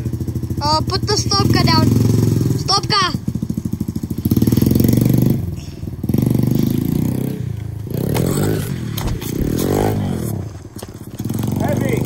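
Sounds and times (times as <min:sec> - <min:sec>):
dirt bike engine revving: 0:00.0 - 0:12.0
knocks and clatter: 0:08.0 - 0:11.6.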